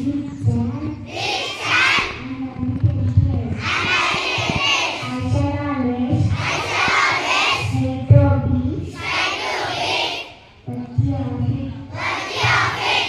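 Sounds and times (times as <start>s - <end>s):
children singing: 1.1s - 2.2s, 3.6s - 5.2s, 6.3s - 7.8s, 9.0s - 10.4s, 11.9s - 13.0s.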